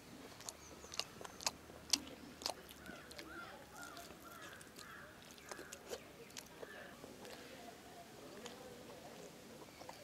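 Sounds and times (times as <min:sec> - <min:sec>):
people chewing: 0:00.0 - 0:10.0
mouth clicks and smacks: 0:00.2 - 0:07.5.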